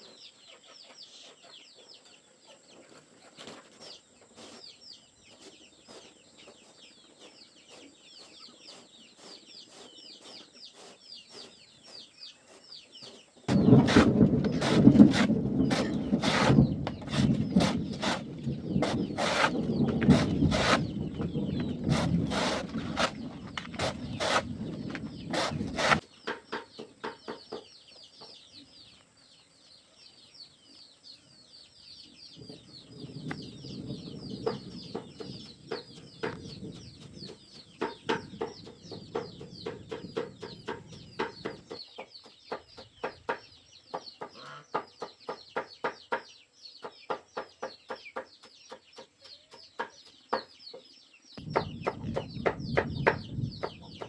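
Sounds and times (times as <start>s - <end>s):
chickens clucking: 0.0s - 29.1s, 32.1s - 54.0s
loud rustling: 13.5s - 26.0s
sharp knocks: 13.5s - 27.6s, 51.4s - 54.0s
high chirping: 51.4s - 54.0s.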